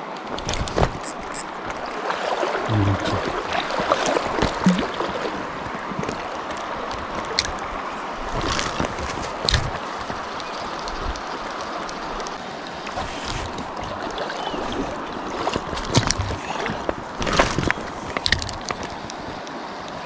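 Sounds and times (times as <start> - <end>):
river water flowing: 0.0 - 20.0
small clicks of gear: 15.8 - 20.0.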